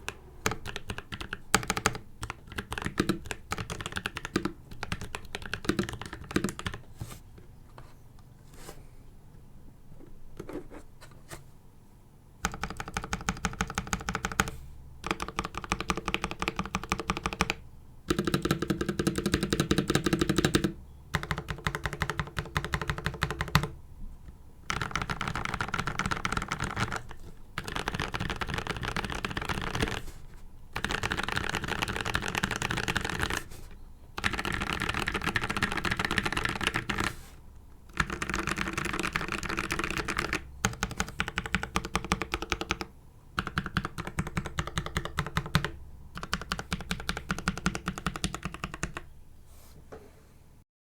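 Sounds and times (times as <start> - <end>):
mechanical keyboard typing: 0.0 - 6.8, 12.4 - 23.8, 24.6 - 30.1, 30.7 - 33.5, 34.2 - 37.2, 37.9 - 49.1.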